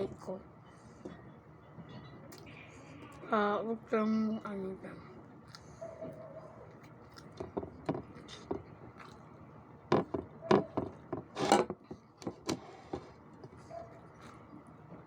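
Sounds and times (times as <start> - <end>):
close-up eating sounds: 4.4 - 15.0.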